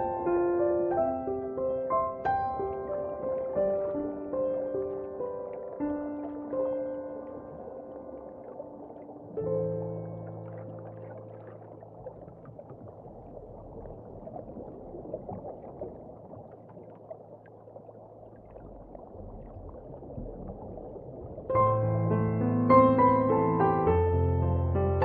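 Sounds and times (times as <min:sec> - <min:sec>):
piano music: 0:00.0 - 0:13.4, 0:21.4 - 0:25.0
crackling ocean water: 0:00.0 - 0:22.1
low rumble: 0:07.5 - 0:22.6.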